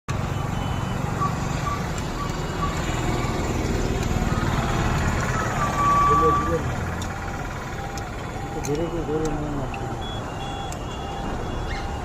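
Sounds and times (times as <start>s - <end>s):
engine low rumble: 0.1s - 12.0s
long beep: 9.8s - 12.0s.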